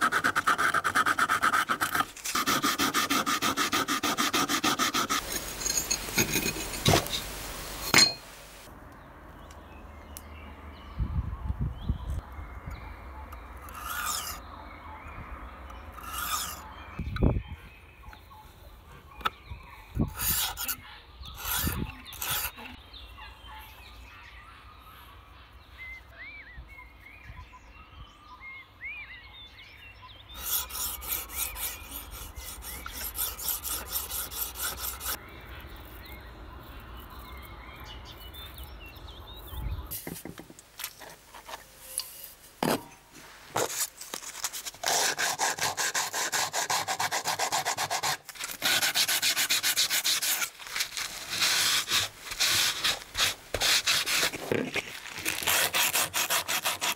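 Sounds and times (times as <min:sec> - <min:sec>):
birds chirping: 0:05.3 - 0:40.2
sharpening stone rasping on blade: 0:13.7 - 0:14.4, 0:16.0 - 0:16.7, 0:20.1 - 0:22.7.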